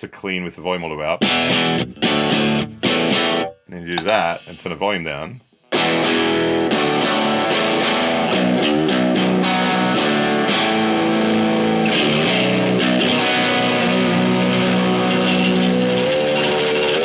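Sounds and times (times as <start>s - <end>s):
electric guitar strums and chords: 5.8s - 17.0s.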